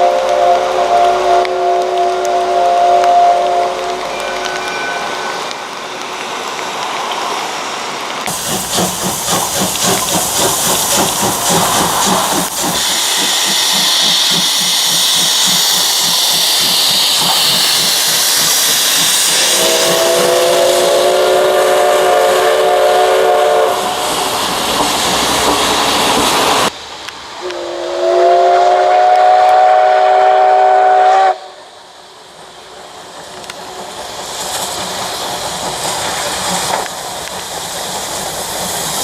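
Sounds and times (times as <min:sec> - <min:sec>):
steam locomotive whistle: 0:00.0 - 0:05.6, 0:12.8 - 0:24.2, 0:27.4 - 0:31.7
steam hissing: 0:00.0 - 0:39.0
train noise: 0:00.0 - 0:39.0.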